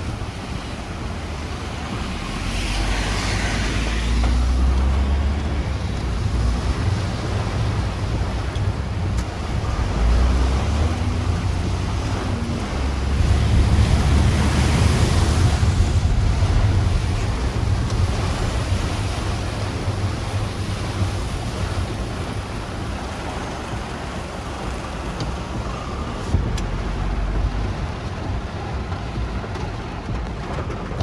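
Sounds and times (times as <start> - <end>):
heavy rain: 0.0 - 31.0
strong wind: 0.0 - 31.0
wind buffeting microphone: 0.0 - 31.0.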